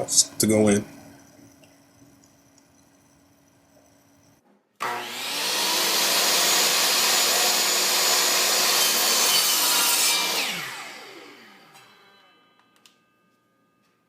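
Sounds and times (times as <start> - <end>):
power tool cutting plywood: 4.8 - 12.3.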